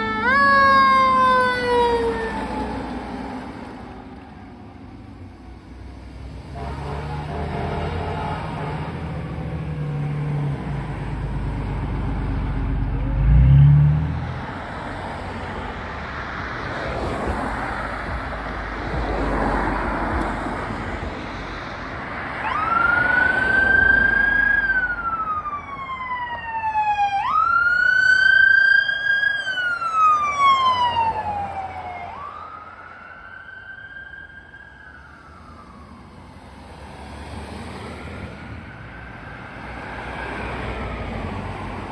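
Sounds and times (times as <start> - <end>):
electronic siren wailing: 0.0 - 2.9
heavy vehicle engine rumbling: 0.0 - 25.3
loud low horn blast: 6.4 - 10.5.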